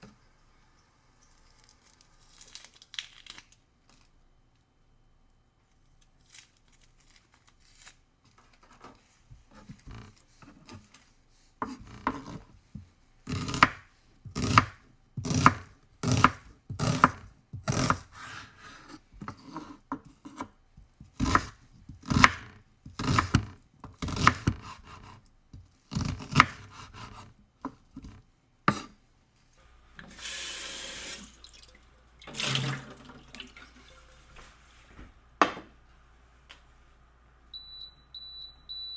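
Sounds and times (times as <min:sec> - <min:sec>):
tap running: 0:32.2 - 0:33.6.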